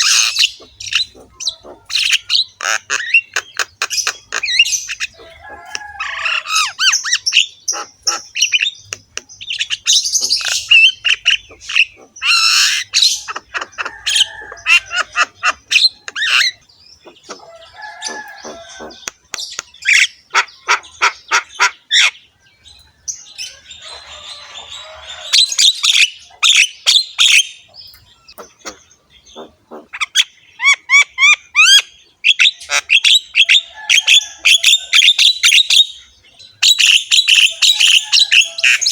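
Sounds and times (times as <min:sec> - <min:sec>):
myna singing harsh rasping calls: 0:00.0 - 0:22.2, 0:28.3 - 0:38.9.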